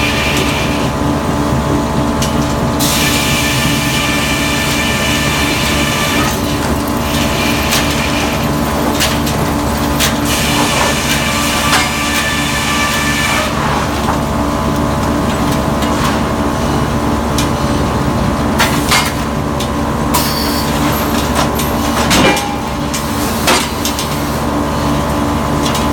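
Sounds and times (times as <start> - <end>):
high mechanical whine: 0.0 - 15.1
sawmill machinery running: 0.0 - 25.9.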